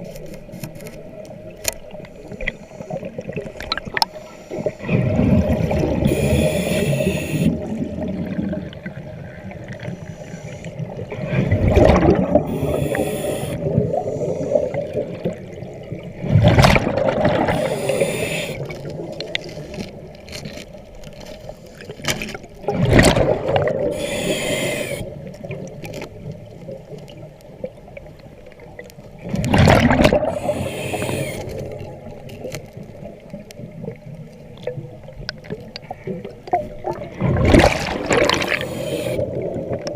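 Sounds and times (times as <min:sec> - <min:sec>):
faint steady hum: 0:00.0 - 0:16.3, 0:17.2 - 0:22.6, 0:23.5 - 0:39.9
regulator inhale hiss: 0:02.1 - 0:03.4, 0:04.1 - 0:05.0, 0:06.0 - 0:07.6, 0:09.8 - 0:10.9, 0:12.4 - 0:14.8, 0:17.5 - 0:18.7, 0:23.8 - 0:25.2, 0:30.3 - 0:31.8, 0:38.4 - 0:39.4
exhaust bubbles bursting: 0:11.4 - 0:12.8, 0:16.3 - 0:17.7, 0:29.3 - 0:30.6, 0:36.9 - 0:38.6.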